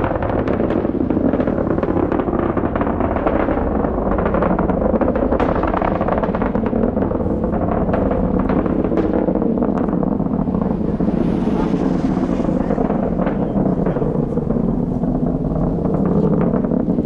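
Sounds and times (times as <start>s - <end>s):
distant rocket engines rumbling: 0.0s - 17.0s.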